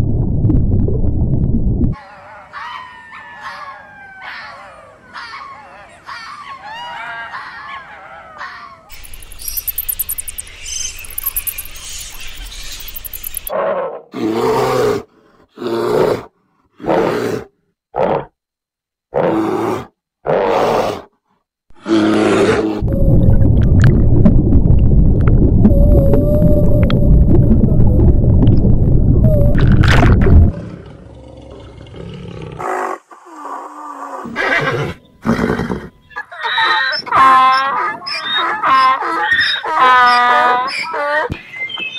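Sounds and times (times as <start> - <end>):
loud low rumble: 0.0 - 2.0, 22.8 - 31.8
fox whining cries: 2.0 - 8.9, 34.2 - 41.4
animal sounds: 2.0 - 15.0, 30.5 - 41.4
fruit bat chittering and screeching: 8.9 - 13.5
bear roaring: 13.5 - 18.3, 19.1 - 21.1, 21.8 - 22.8.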